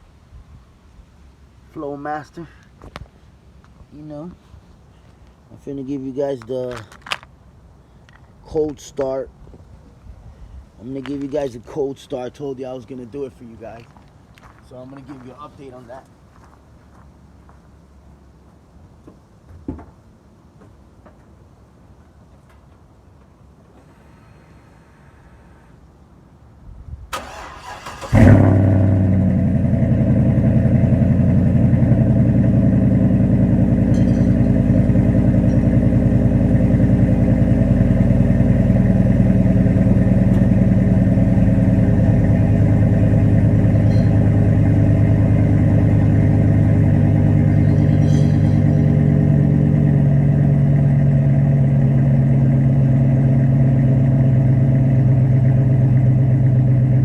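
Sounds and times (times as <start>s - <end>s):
pickup truck engine starting: 27.1s - 57.0s
engine idling: 27.2s - 57.0s.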